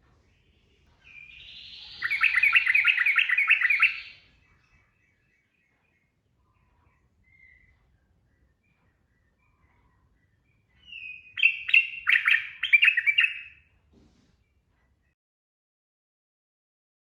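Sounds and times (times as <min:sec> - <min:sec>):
bulbul singing: 0:00.6 - 0:13.7.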